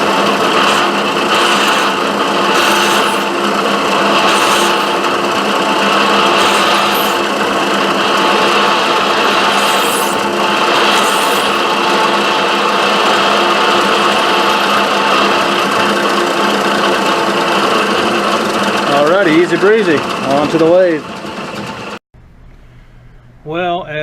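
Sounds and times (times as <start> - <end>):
high-pitched noise bursts: 0.0 - 16.3
milling machine drilling: 0.0 - 22.0.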